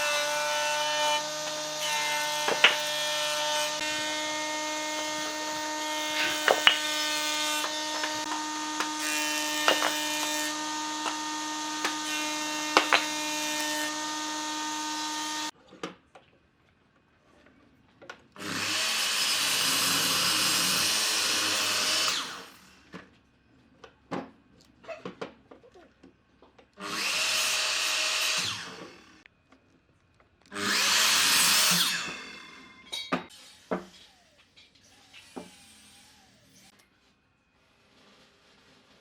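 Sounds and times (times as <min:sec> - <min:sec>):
power tool cutting wood: 0:00.0 - 0:15.5, 0:18.4 - 0:22.8, 0:26.8 - 0:29.2, 0:30.5 - 0:36.8.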